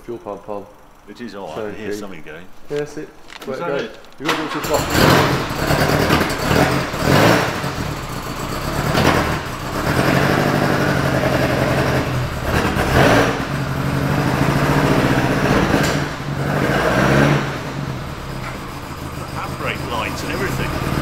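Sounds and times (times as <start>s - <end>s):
car engine running with throttle blips: 4.4s - 21.0s.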